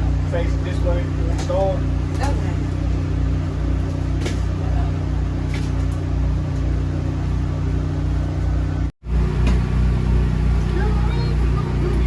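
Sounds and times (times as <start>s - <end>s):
machinery humming: 6.2s - 12.0s.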